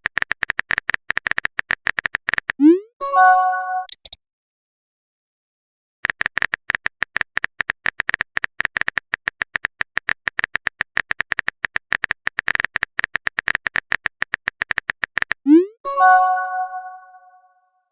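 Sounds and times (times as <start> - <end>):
keyboard typing clicks: 0.0 - 2.7, 3.8 - 4.2, 6.0 - 15.4
notification chime: 2.6 - 3.9, 15.5 - 17.5.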